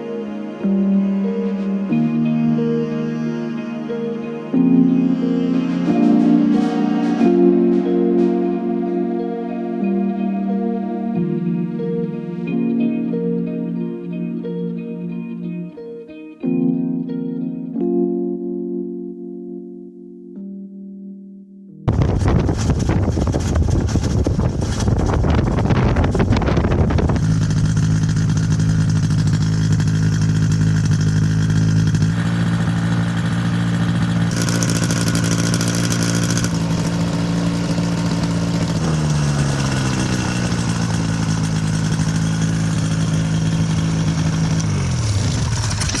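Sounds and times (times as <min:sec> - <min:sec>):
light aircraft engine running: 0:21.9 - 0:46.0.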